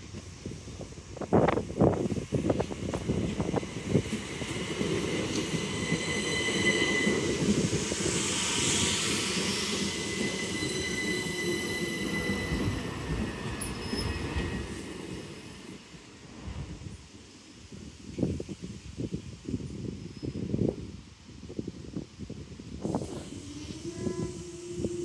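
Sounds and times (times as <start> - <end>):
train rumble: 0.0 - 25.0
high wheel squeal: 3.7 - 15.2.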